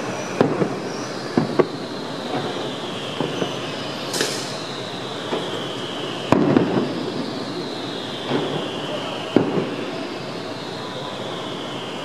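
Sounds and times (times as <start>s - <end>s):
firework bangs: 0.0s - 12.0s
firework whistles falling in pitch: 0.0s - 12.0s.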